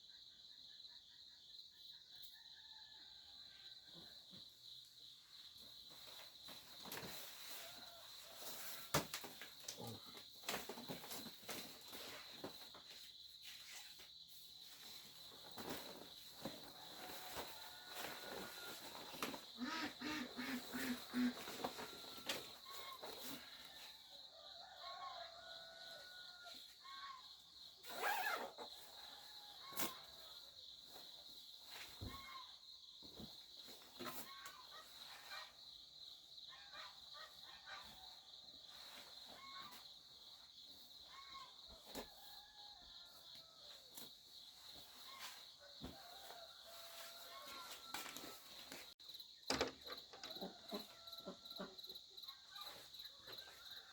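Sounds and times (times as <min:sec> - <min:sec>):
insect drone: 0:00.0 - 0:37.3
footsteps: 0:44.0 - 0:49.0.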